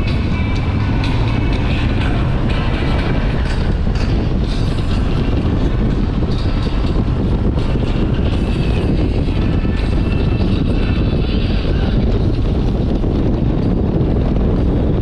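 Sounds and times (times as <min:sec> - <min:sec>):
motorcycle running at speed: 0:00.0 - 0:15.0
wind rushing over microphone: 0:00.0 - 0:15.0.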